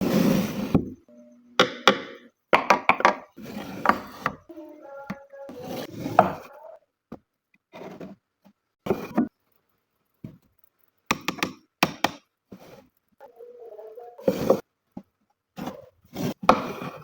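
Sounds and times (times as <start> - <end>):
wood knocks and taps: 1.6 - 3.3
wood scraping: 3.3 - 4.5, 14.2 - 14.6.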